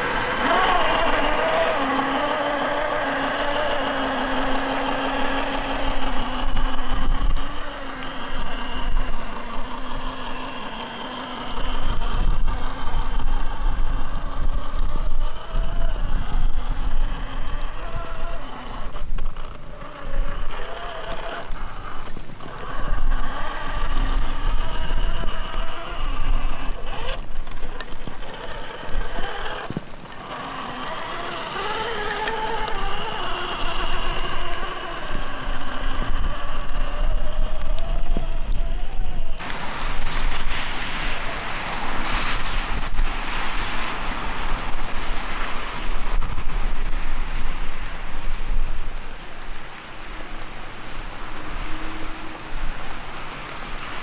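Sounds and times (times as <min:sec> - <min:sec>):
rc car motor whining: 0:00.0 - 0:45.0, 0:49.3 - 0:54.0.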